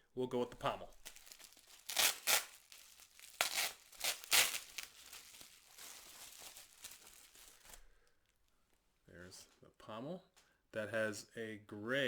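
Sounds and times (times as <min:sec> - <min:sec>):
packaging crinkling and tearing: 0:00.8 - 0:07.9.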